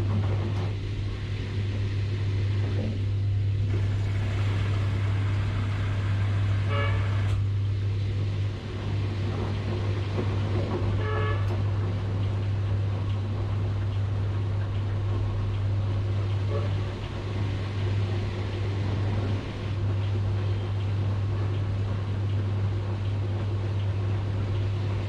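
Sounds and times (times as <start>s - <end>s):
washing machine churning: 0.0s - 25.0s
horn-like tones: 6.6s - 7.5s, 11.0s - 11.6s, 16.4s - 17.0s.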